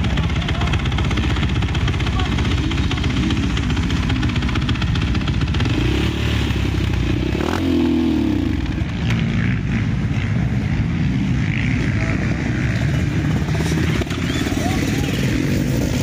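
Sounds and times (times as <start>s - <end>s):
motocross bike engines: 0.0s - 16.0s
engine revving: 5.3s - 10.4s.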